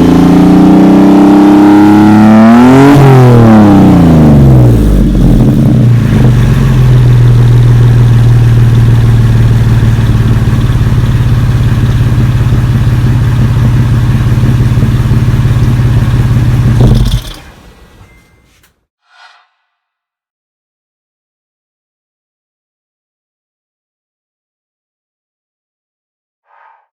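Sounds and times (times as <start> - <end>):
car exhaust running: 0.0 - 17.5.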